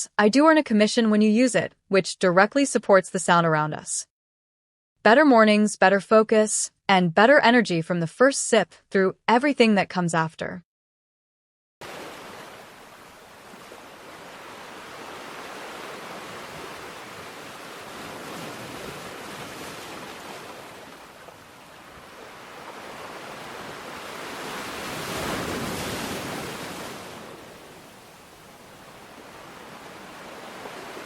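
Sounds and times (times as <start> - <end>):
ocean waves washing in: 11.8 - 31.0.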